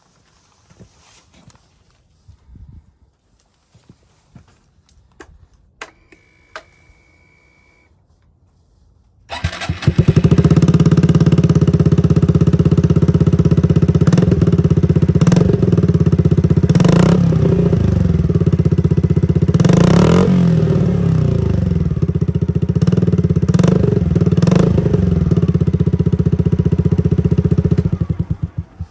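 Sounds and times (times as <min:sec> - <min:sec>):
motorcycle engine idling: 0:09.3 - 0:28.9.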